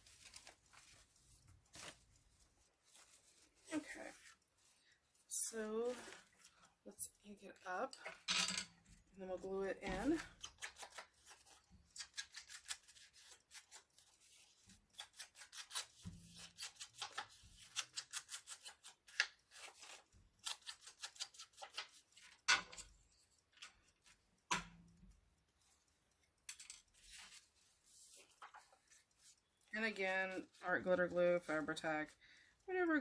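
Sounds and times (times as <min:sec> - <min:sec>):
paper handling: 0:01.7 - 0:02.1.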